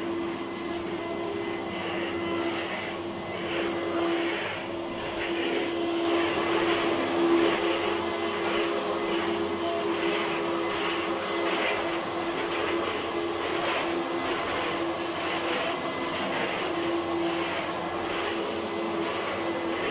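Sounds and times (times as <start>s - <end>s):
vacuum cleaner running: 0.0s - 19.9s.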